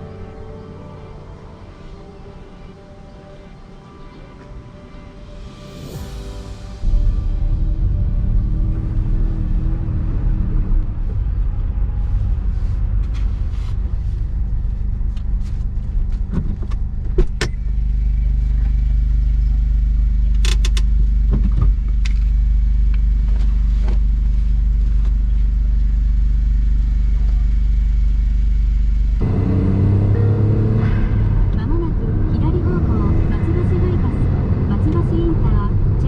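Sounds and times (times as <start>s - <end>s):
car engine running: 5.6s - 36.0s
sharp clicks and light rattles: 20.3s - 22.3s.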